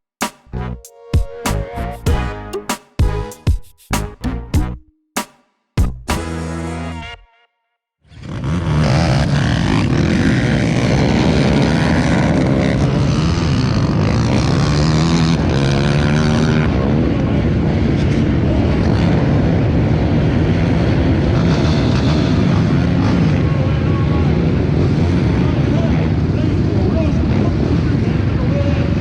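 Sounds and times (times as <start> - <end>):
atv engine running loudly: 8.2 - 29.0.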